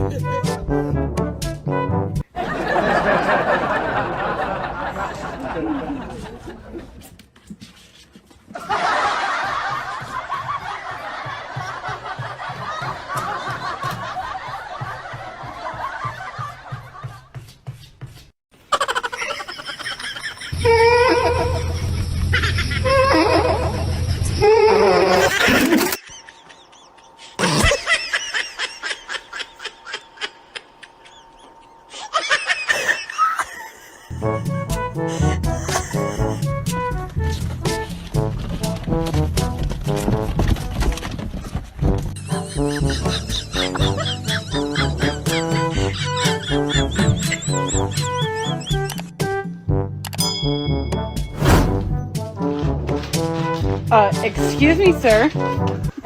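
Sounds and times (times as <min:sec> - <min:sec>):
crowd laughing: 0:02.3 - 0:07.0, 0:08.5 - 0:17.5, 0:18.7 - 0:20.7, 0:25.1 - 0:34.2, 0:35.1 - 0:36.4, 0:42.2 - 0:48.9
burst of laughing: 0:35.1 - 0:36.5
high giggles: 0:35.1 - 0:36.5.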